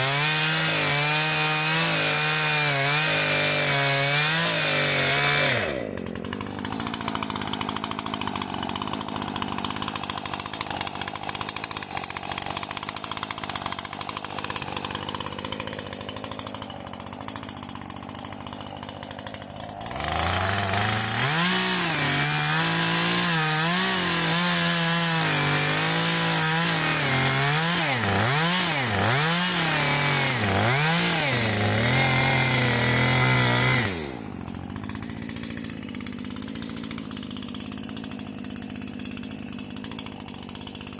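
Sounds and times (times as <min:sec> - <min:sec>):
chainsaw running and revving: 0:00.0 - 0:40.9.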